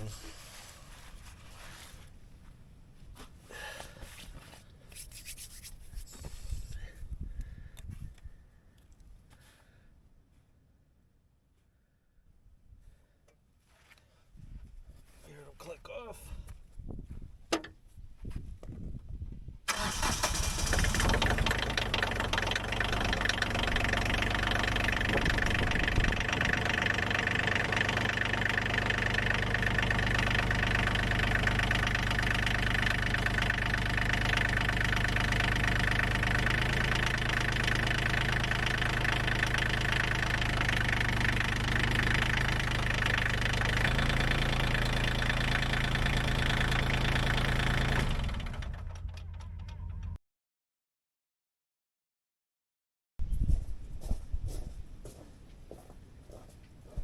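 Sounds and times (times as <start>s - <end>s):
diesel engine starting and idling: 19.7s - 50.2s.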